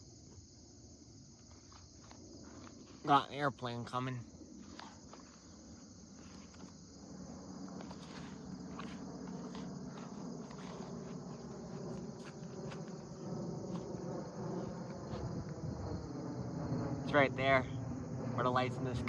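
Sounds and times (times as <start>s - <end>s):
crickets chirping: 0.0s - 19.0s
distant airplane drone: 0.0s - 19.0s.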